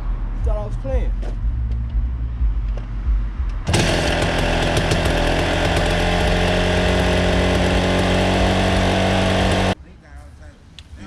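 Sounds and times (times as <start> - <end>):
dirt bike engine buzzing: 3.6 - 9.8.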